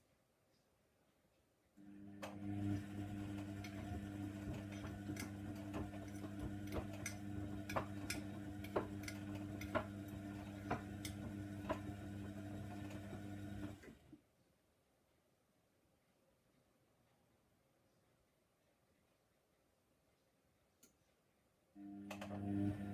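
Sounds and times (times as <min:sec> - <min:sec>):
washer drum motor hum: 0:01.8 - 0:14.1, 0:21.8 - 0:22.9.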